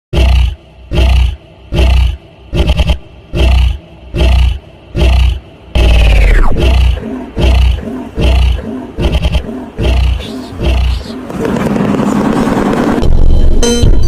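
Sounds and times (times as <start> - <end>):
animal roaring: 0.1 - 11.9.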